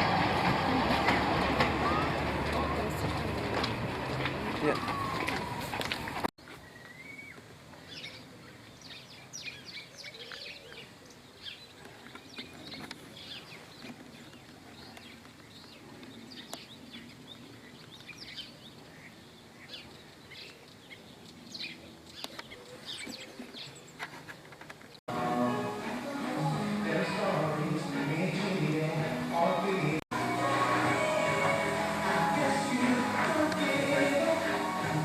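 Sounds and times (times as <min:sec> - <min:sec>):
small birds chirping: 0:06.4 - 0:25.0.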